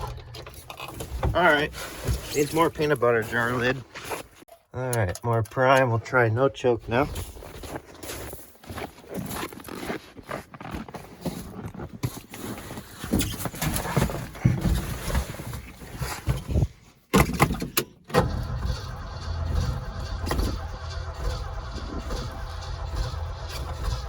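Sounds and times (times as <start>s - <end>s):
starter cranking engine: 18.1s - 24.0s.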